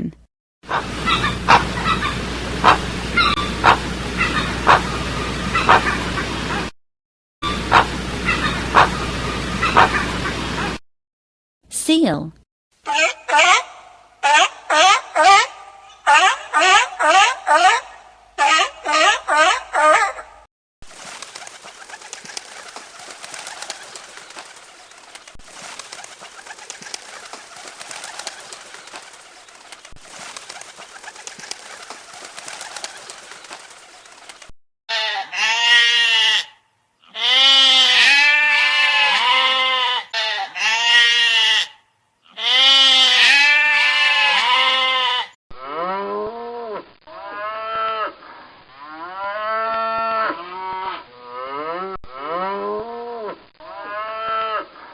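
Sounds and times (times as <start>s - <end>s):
animal bleating: 34.9s - 45.4s.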